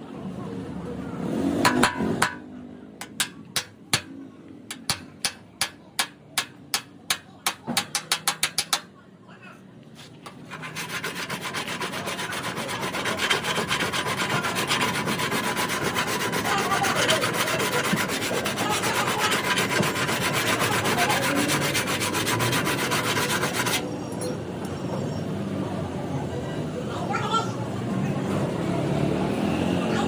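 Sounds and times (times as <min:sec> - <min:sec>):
sanding car body panel: 0:10.3 - 0:23.8.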